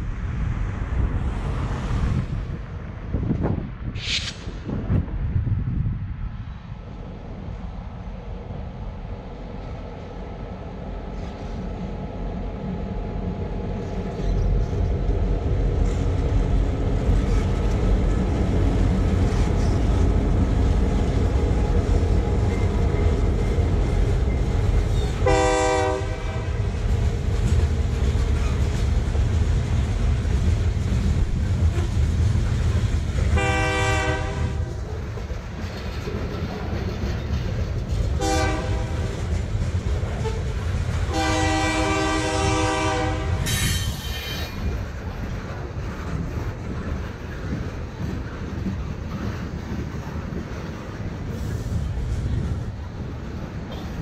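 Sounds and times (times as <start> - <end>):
locomotive engines droning: 6.4 - 54.0
distant locomotive horn: 24.9 - 26.8, 31.6 - 32.0, 33.4 - 34.9, 38.2 - 39.3, 40.2 - 44.2
freight cars clacking over rails: 34.6 - 38.2.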